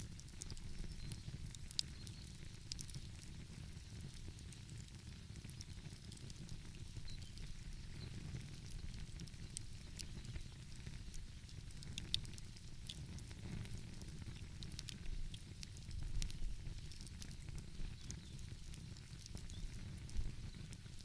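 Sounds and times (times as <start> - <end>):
fire pops: 0.0 - 21.0
wood fire crackling: 0.0 - 21.0.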